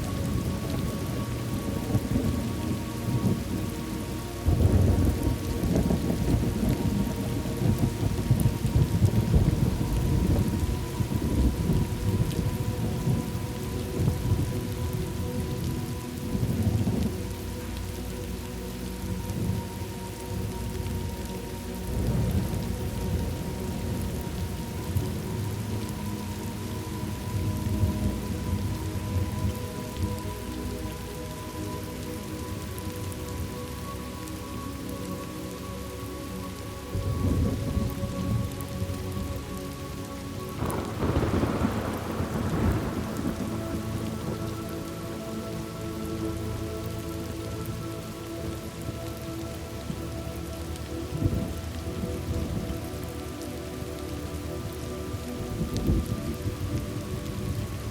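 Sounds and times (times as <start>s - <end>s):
steady rain falling: 0.0s - 57.9s
rolling thunder: 4.4s - 14.7s, 40.6s - 44.6s.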